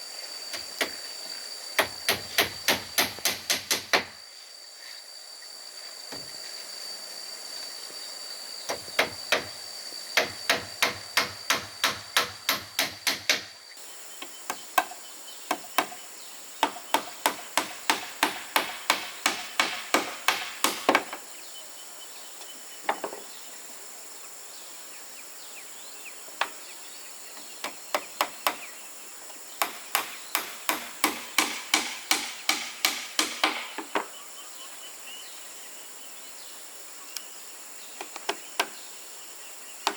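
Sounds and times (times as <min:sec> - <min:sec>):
high insect buzz: 0:00.0 - 0:39.9
hammer striking nails into wood: 0:01.8 - 0:04.2, 0:08.7 - 0:09.6, 0:10.2 - 0:13.5, 0:16.6 - 0:21.2, 0:29.6 - 0:34.0.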